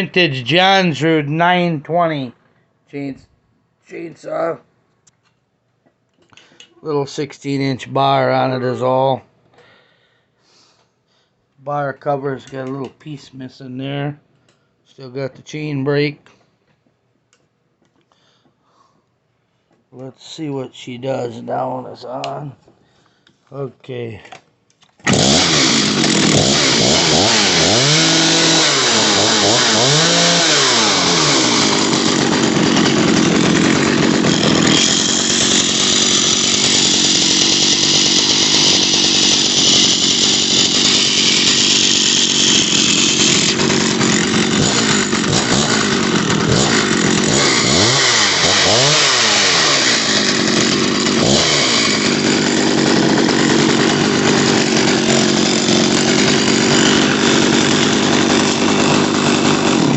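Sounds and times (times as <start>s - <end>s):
chainsaw engine revving: 25.0s - 59.9s.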